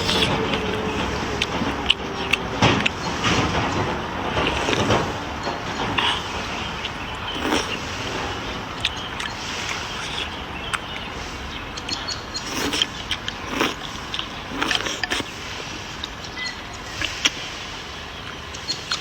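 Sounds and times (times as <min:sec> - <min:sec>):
steady hiss: 0:06.2 - 0:19.0.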